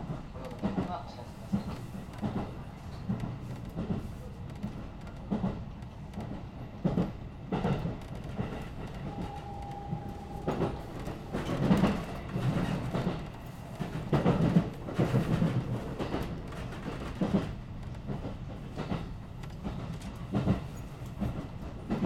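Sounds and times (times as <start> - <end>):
train running rumble: 0.0 - 22.0
short steady tone: 9.1 - 11.8.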